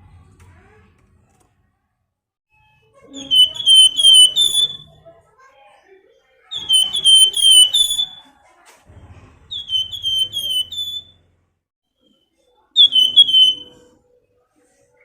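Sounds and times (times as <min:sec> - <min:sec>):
songbird whistling downward notes: 0:03.2 - 0:04.9, 0:06.6 - 0:08.2, 0:09.6 - 0:11.1, 0:12.8 - 0:13.8.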